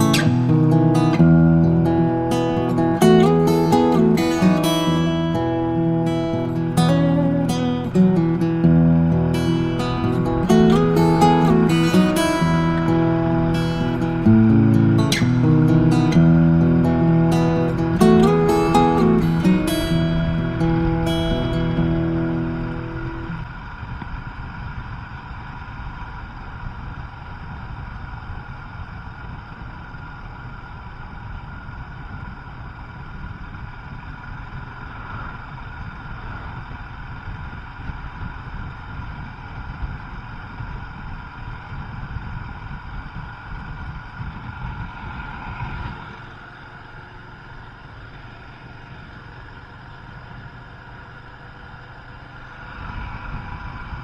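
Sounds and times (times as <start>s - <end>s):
motorcycle engine running: 0.0s - 54.0s
wind rumble on microphone: 30.6s - 46.2s, 52.6s - 54.0s.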